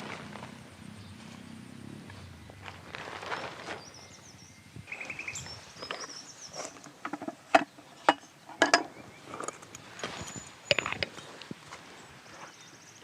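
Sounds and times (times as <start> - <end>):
high chirping trills: 3.2 - 6.8
objects knocking and clicking: 5.8 - 11.2.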